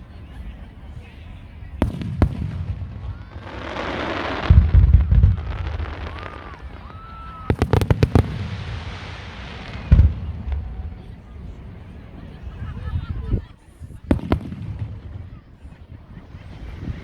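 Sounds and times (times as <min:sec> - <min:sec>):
deep firework booms: 0:01.7 - 0:12.6, 0:14.0 - 0:15.5
sharp firework cracks: 0:01.8 - 0:11.3, 0:14.1 - 0:15.2
firework bang: 0:01.8 - 0:12.0, 0:14.1 - 0:15.4.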